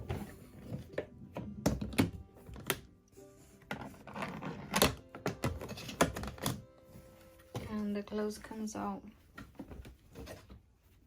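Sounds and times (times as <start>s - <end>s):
plastic knocks and clicks: 0.0s - 2.9s, 3.7s - 6.7s.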